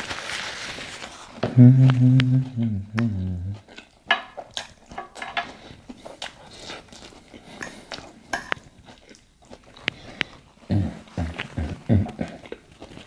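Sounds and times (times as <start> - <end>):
cutlery clinking on a dish: 4.1 - 5.6, 7.6 - 8.7.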